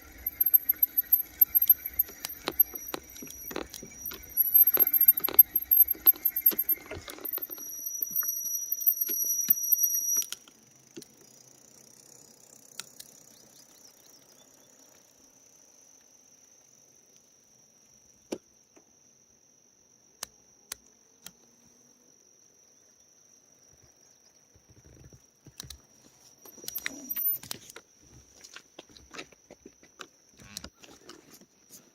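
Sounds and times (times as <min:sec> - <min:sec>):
sharp clicks: 0:00.0 - 0:11.1
high-pitched insect drone: 0:00.0 - 0:28.5.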